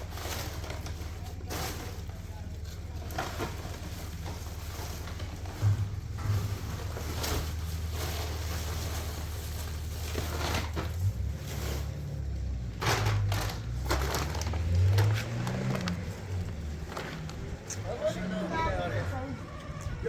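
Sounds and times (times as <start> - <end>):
dry wood crunching and snapping: 12.8 - 18.0.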